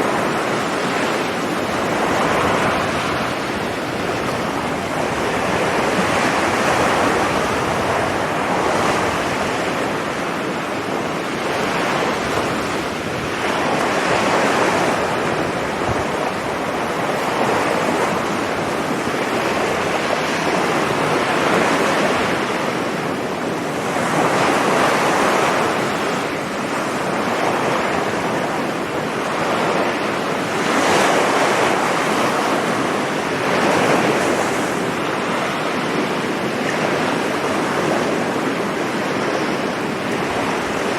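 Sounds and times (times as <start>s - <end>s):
sea waves breaking: 0.0s - 40.9s
wind on microphone: 0.0s - 40.9s.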